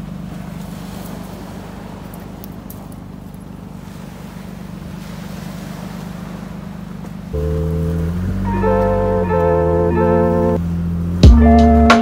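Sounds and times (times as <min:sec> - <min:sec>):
car engine idling: 0:00.0 - 0:12.0
guitar music: 0:07.4 - 0:10.6, 0:11.2 - 0:12.0.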